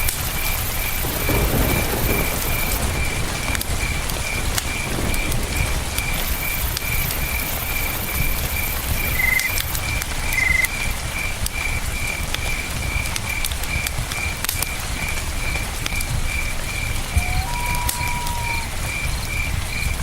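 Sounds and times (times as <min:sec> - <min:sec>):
insect trills: 0:00.0 - 0:03.2, 0:06.0 - 0:11.3, 0:15.4 - 0:20.0
campfire crackling and popping: 0:00.0 - 0:20.0
cricket chirping: 0:00.0 - 0:20.0.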